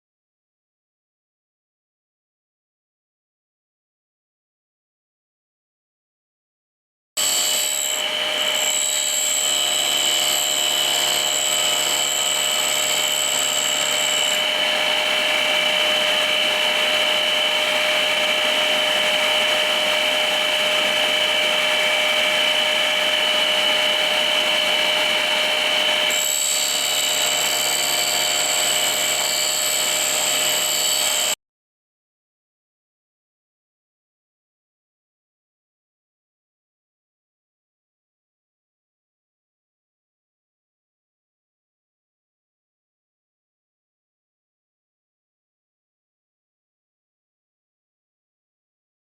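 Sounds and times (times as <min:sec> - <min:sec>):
very high-pitched tone: 0:07.2 - 0:09.2
grinder machine whine: 0:07.2 - 0:31.4
vacuum cleaner running: 0:07.2 - 0:31.4.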